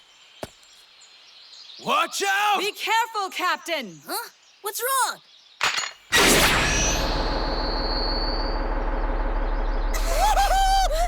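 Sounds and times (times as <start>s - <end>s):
high whine: 6.1s - 11.0s
high-pitched cry: 10.0s - 11.0s.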